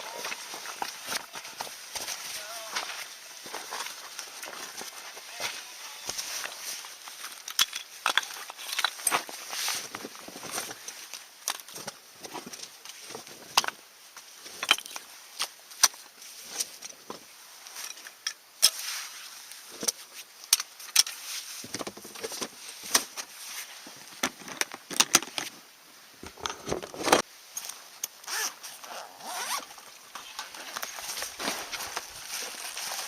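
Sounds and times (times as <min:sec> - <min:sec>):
camping gear clicks and knocks: 0:07.1 - 0:18.8, 0:19.7 - 0:23.4, 0:24.0 - 0:25.6, 0:26.2 - 0:33.0
rustling scrapes: 0:28.3 - 0:33.0.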